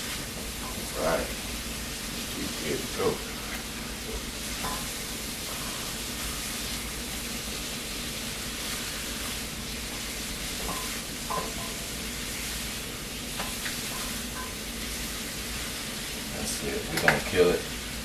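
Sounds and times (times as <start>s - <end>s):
meat and onions sizzling in a pan: 0.0s - 18.0s.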